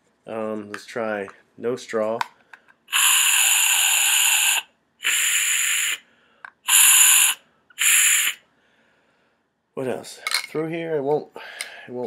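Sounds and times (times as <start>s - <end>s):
breath blasts through pump spray: 2.9s - 6.0s, 6.6s - 8.4s.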